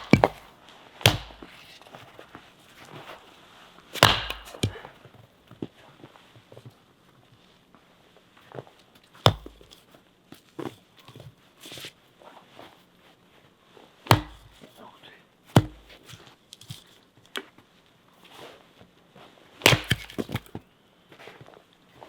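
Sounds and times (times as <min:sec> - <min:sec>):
wood knocking: 0:00.0 - 0:00.5, 0:04.0 - 0:04.8, 0:09.3 - 0:09.8, 0:14.1 - 0:14.6, 0:15.6 - 0:16.0, 0:19.7 - 0:20.6.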